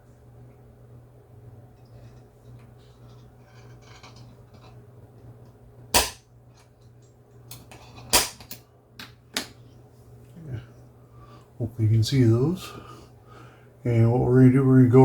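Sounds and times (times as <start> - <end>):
center punch metallic snaps: 6.0 - 6.3, 8.1 - 8.6.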